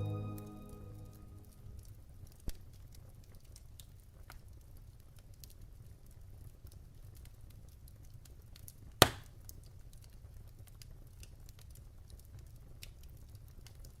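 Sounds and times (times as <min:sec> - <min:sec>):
wood fire crackling: 0:02.6 - 0:14.0
loud fire pop: 0:09.0 - 0:09.2.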